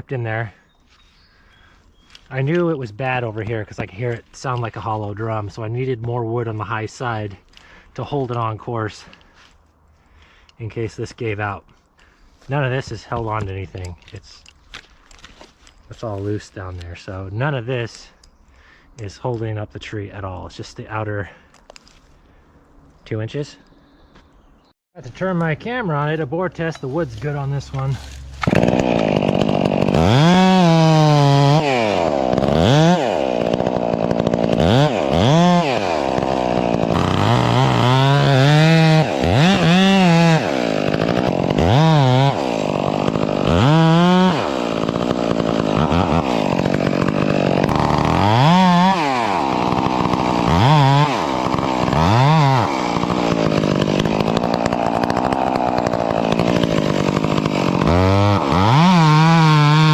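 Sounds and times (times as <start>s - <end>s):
chainsaw cutting wood: 26.6s - 59.9s.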